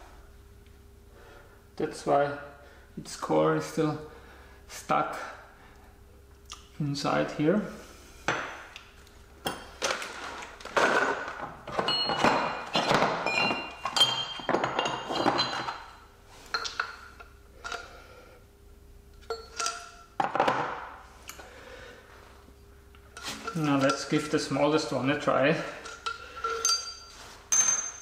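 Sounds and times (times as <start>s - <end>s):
faint steady hum: 0.0s - 28.0s
steel parts knocking and clinking: 10.8s - 16.0s, 19.2s - 20.6s, 25.8s - 28.0s.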